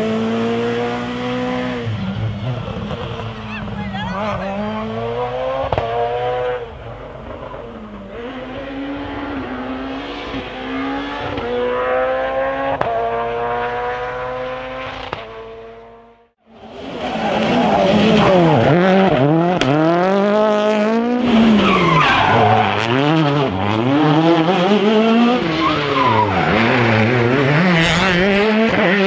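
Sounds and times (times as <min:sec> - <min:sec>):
rally car engine accelerating: 0:00.0 - 0:29.0
sharp engine pops: 0:05.6 - 0:06.0.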